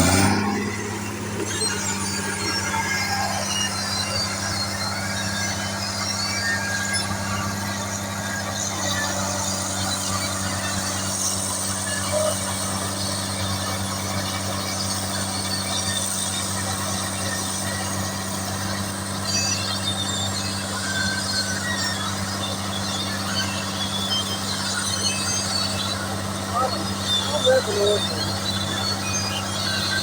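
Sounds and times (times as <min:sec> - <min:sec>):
short high squeaks: 0:00.0 - 0:08.2, 0:17.6 - 0:30.0
heavy machinery engine running: 0:00.0 - 0:30.0.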